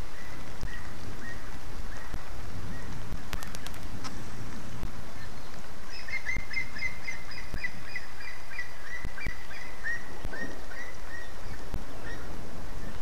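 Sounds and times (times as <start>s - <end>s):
rain hiss: 0.0s - 13.0s
bird chirps: 5.2s - 13.0s.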